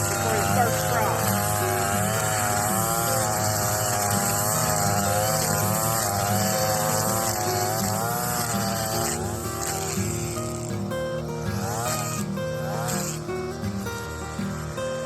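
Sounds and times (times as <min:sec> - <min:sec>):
string trimmer engine running: 0:00.0 - 0:15.0.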